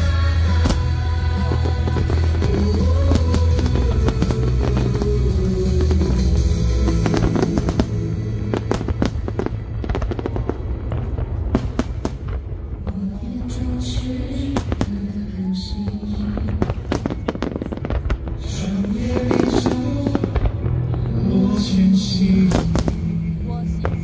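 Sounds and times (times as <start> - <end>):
music playing loudly: 0.0 - 12.3, 16.7 - 24.0
fireworks bangs and crackles: 0.0 - 24.0.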